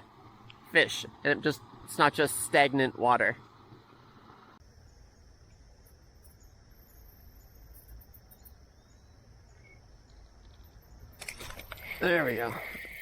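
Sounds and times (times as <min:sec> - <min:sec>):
high-pitched insect trill: 0:04.6 - 0:13.0.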